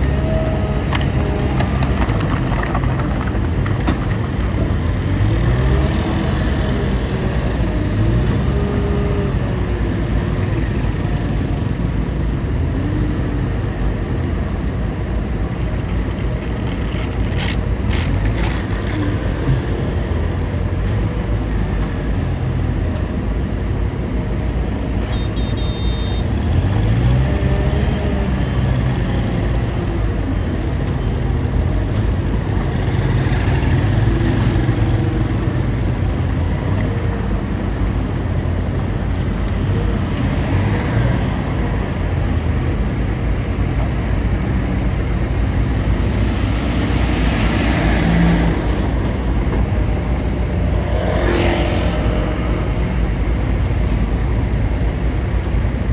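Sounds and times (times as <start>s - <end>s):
bulldozer diesel engine rumbling: 0.0s - 55.9s
high-pitched beep: 25.1s - 26.3s.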